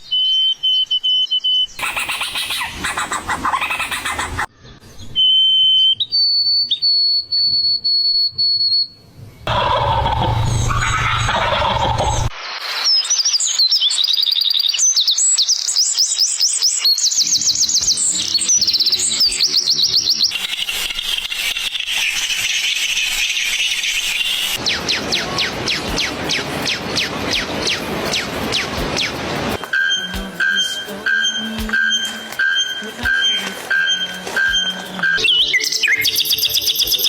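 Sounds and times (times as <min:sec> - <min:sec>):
bird whistling: 0:00.0 - 0:04.5, 0:29.8 - 0:37.0
rapid high bird chirps: 0:00.0 - 0:04.5, 0:12.7 - 0:29.2, 0:29.8 - 0:37.0.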